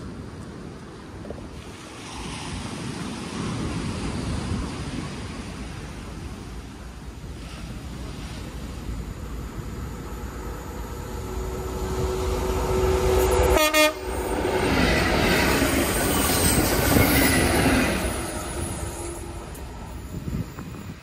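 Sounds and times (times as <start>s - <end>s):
freight train passing rumble: 0.0s - 21.0s
locomotive two-tone horn: 11.3s - 14.7s.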